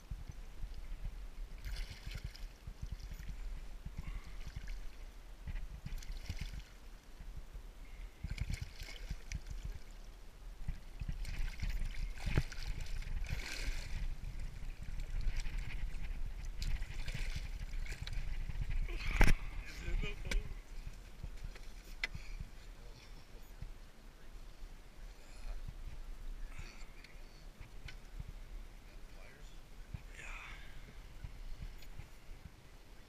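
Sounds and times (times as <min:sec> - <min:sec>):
water splashing and trickling: 0:00.1 - 0:07.2, 0:08.0 - 0:22.0.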